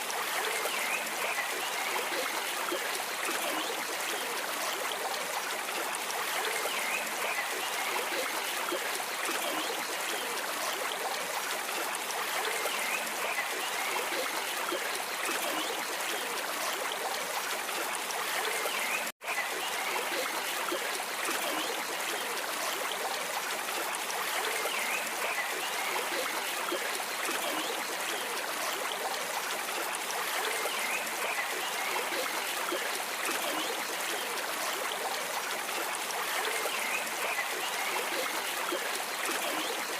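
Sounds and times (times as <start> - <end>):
shallow stream flowing: 0.0 - 39.9.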